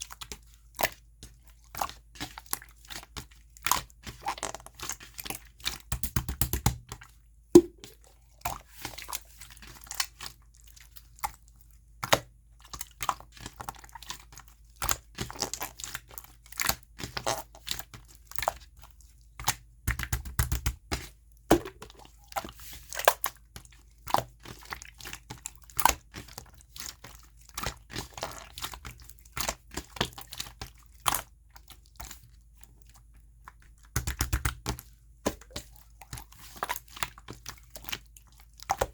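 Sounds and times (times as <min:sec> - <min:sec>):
slime wet clicks and pops: 0:07.6 - 0:08.0, 0:21.5 - 0:22.1.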